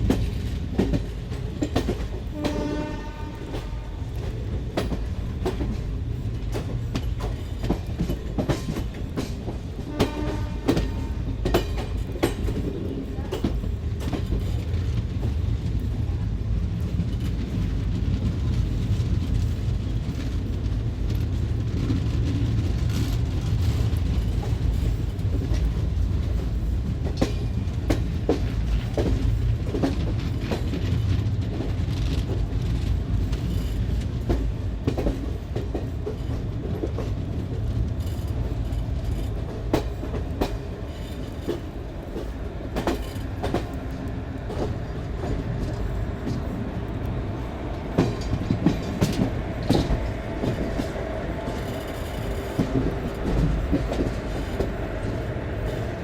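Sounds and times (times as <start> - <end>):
wheels clanking over rail joints: 0.0 - 15.4, 20.5 - 55.1
train coaches rumbling past: 0.0 - 56.0.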